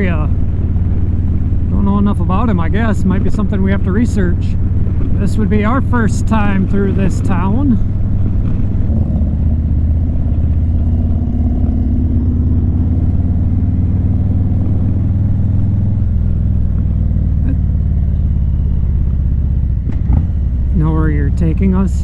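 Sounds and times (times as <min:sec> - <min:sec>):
motorcycle engine cruising: 0:00.0 - 0:22.0.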